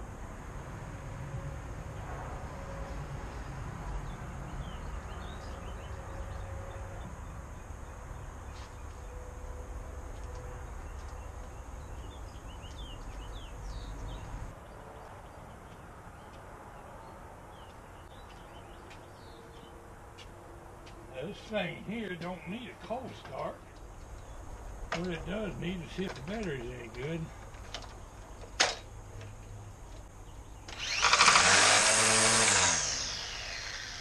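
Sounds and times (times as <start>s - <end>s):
small birds chirping: 3.9s - 9.2s, 10.7s - 20.3s, 20.9s - 28.6s, 32.1s - 34.0s.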